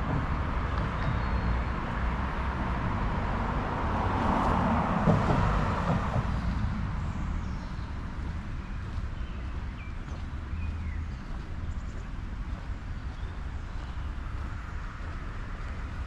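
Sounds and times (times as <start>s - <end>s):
car passing by: 0.0s - 9.0s
low rumble of traffic: 0.0s - 16.0s.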